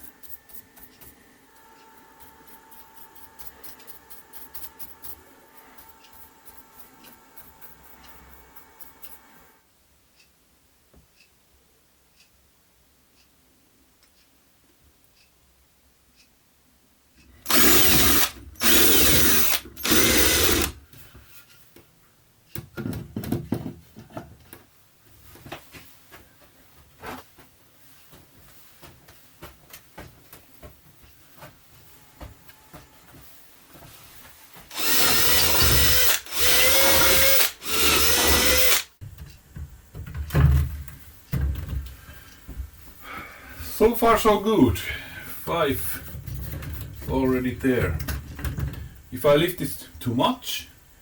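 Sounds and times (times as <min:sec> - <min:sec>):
power drill bursts: 0:17.4 - 0:20.8, 0:34.7 - 0:38.9.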